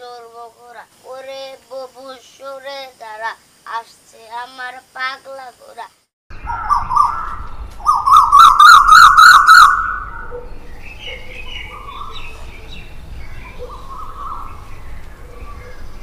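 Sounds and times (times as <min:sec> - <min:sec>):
birds chirping and calling: 0:06.3 - 0:16.0.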